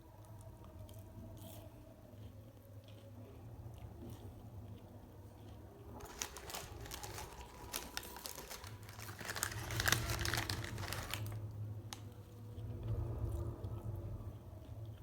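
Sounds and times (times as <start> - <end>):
paper packaging crinkling: 5.9 - 12.0.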